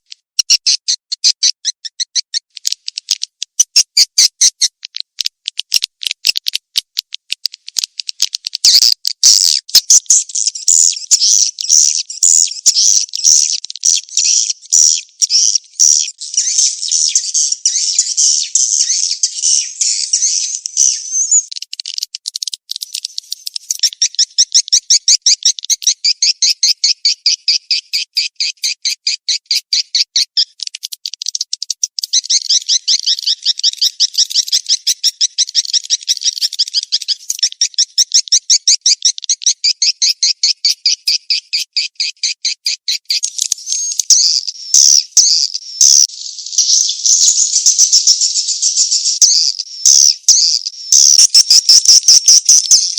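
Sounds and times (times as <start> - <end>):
swiftlet chirping calls: 8.2 - 21.6, 43.0 - 52.9.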